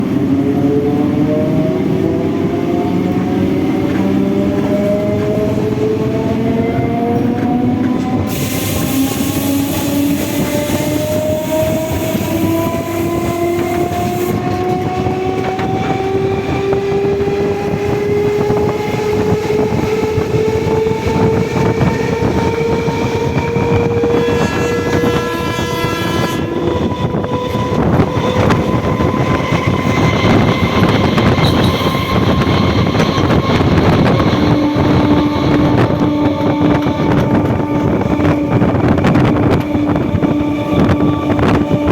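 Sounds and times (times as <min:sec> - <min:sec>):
electric train motor whine: 0:01.2 - 0:41.9
train horn blast: 0:08.2 - 0:15.9, 0:23.5 - 0:41.9.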